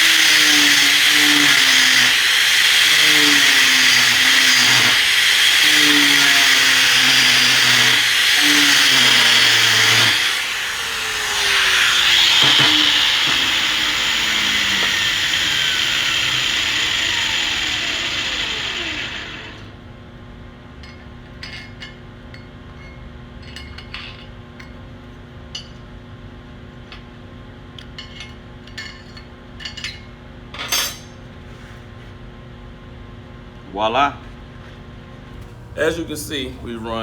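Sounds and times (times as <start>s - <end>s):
welding arc crackling and hissing: 0.0s - 19.1s.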